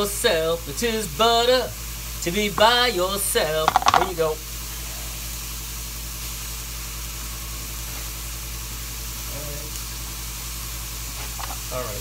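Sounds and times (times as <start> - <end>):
low steady hum: 1.1 - 5.1
mushrooms sizzling in skillet: 5.3 - 12.0.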